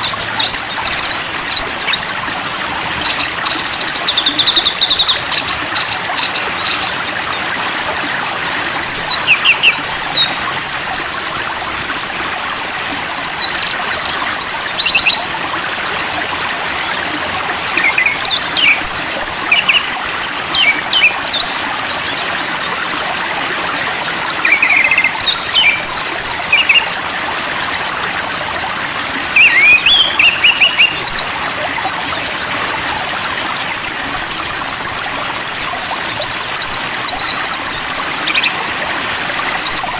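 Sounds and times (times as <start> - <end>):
flowing water: 0.0 - 39.9
songbird singing: 8.7 - 15.3, 17.8 - 21.6, 24.4 - 26.9, 29.3 - 31.9, 33.7 - 38.6.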